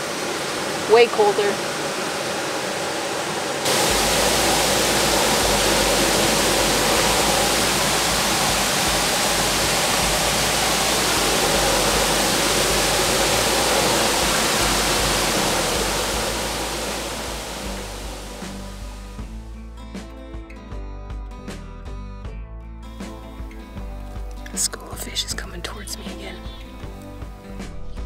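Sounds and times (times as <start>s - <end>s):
waterfall rushing: 0.0s - 19.2s.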